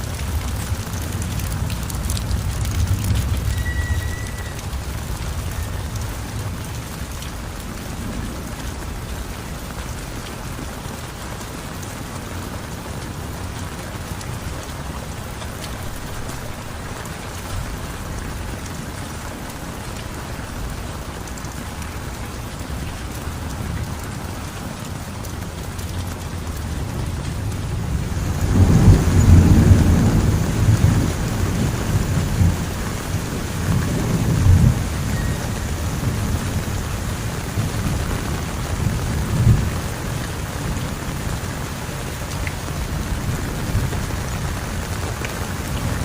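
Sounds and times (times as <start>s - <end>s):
heavy rain falling: 0.0s - 46.0s.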